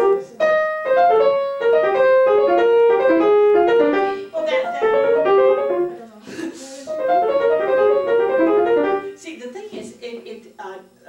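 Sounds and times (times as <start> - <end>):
classical piano: 0.0 - 6.2, 6.9 - 9.2.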